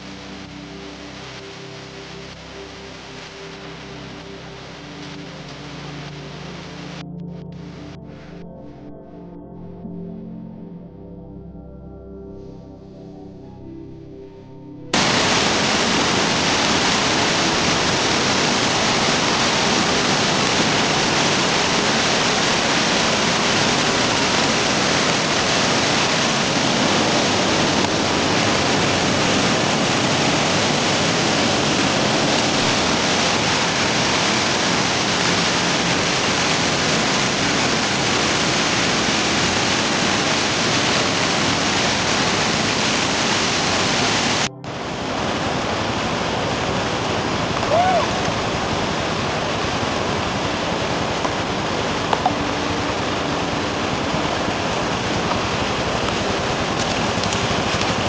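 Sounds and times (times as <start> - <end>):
fast-flowing water rushing: 0.0 - 7.0, 15.0 - 58.0.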